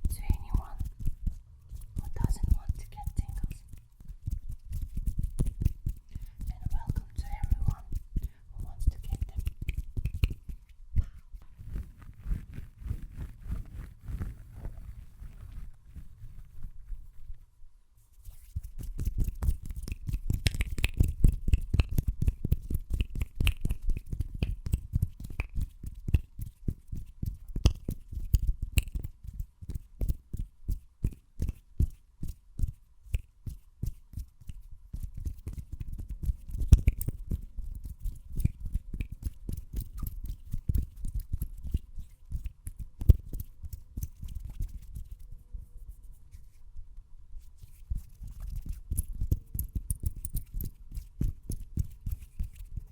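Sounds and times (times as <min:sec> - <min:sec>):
soft hand thuds and rubs: 0:00.0 - 0:17.4.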